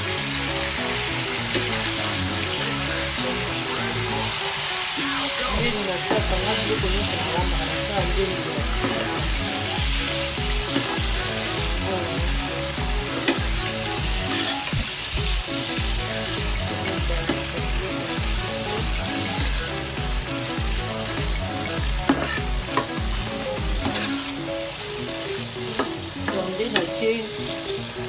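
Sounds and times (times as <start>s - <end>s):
background music with beat: 0.0s - 28.0s
fish sizzling in oil: 0.0s - 28.0s
spatula scraping pan: 8.7s - 9.4s, 13.2s - 14.8s, 22.1s - 23.0s, 23.8s - 24.4s.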